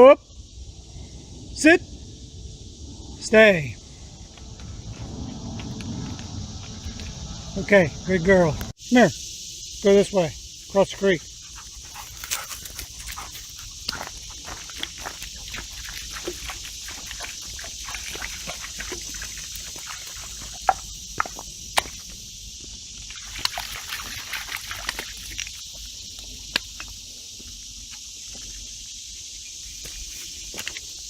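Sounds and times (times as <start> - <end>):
cicadas chorus: 0.0 - 31.0
footsteps on stony creek bed: 10.9 - 28.7, 29.8 - 31.0.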